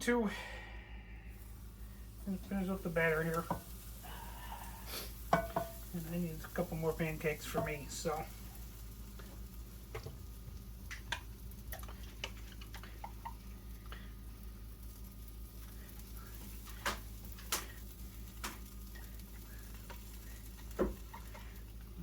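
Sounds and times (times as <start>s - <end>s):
low steady hum: 0.0s - 22.0s
utensil tapping bowl and pan: 3.2s - 3.8s, 5.3s - 6.6s, 7.4s - 8.1s, 18.4s - 18.8s, 19.9s - 21.6s.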